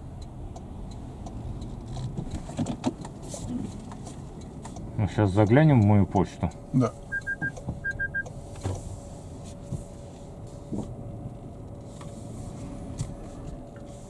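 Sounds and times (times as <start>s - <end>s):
vehicle rumble: 0.0s - 14.0s
electronic beeps: 7.1s - 8.3s.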